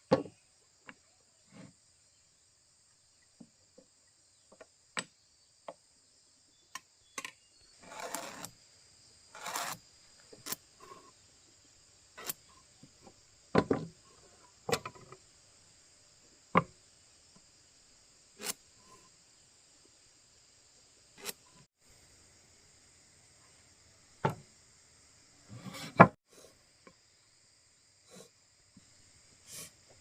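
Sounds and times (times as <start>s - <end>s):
crickets chirping: 0.0s - 30.0s
sharp woodworking knocks: 0.1s - 0.3s, 24.2s - 24.4s
hand tool scraping wood: 7.8s - 8.6s, 9.3s - 9.8s, 12.2s - 12.4s, 18.4s - 18.6s, 25.5s - 26.2s.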